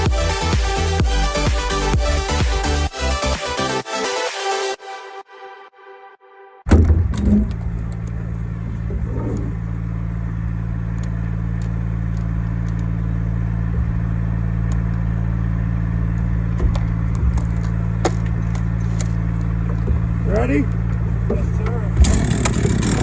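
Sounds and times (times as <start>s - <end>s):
loud thump: 6.7s - 9.6s
machine engine running: 6.7s - 23.0s.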